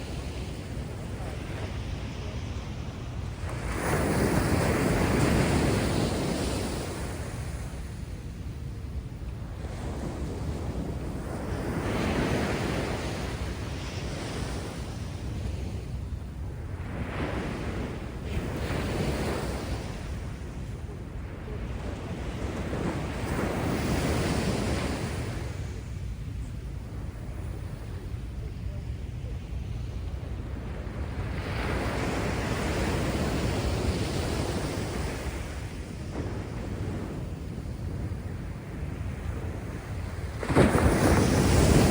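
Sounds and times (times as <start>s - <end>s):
waves crashing on beach: 0.0s - 41.9s
wind rumble on microphone: 0.0s - 41.9s
wave breaking on beach: 39.6s - 41.9s.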